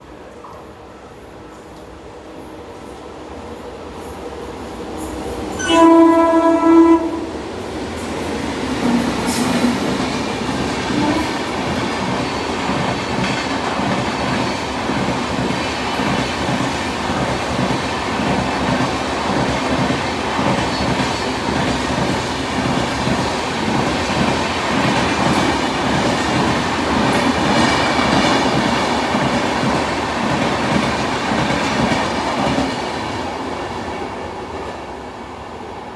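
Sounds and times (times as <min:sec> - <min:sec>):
train coaches rumbling and clattering: 0:00.0 - 0:35.9
train horn blast: 0:05.6 - 0:07.4, 0:10.9 - 0:11.4.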